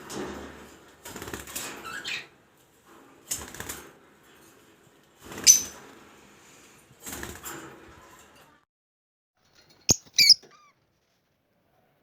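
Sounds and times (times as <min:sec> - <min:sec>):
bird chirp: 0:09.8 - 0:10.8.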